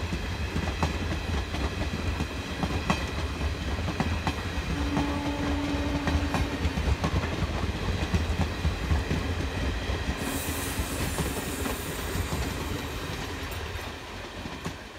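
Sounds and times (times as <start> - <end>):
train coaches rumbling past: 0.0 - 14.9
high hiss: 10.1 - 13.4.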